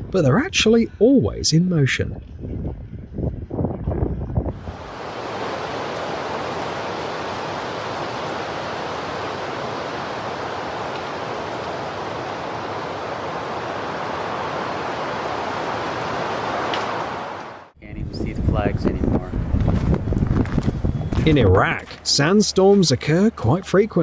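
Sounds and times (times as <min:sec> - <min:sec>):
strong wind rushing: 0:02.1 - 0:10.7, 0:17.8 - 0:21.6.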